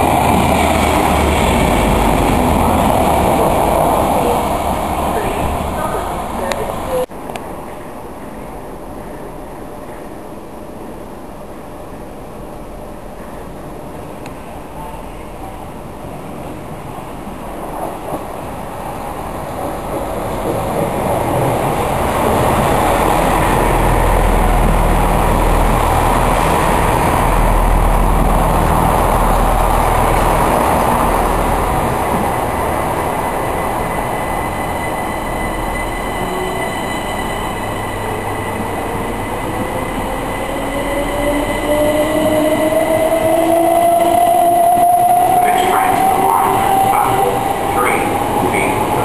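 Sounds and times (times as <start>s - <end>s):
train wheels rumbling on rail: 13.1s - 49.0s.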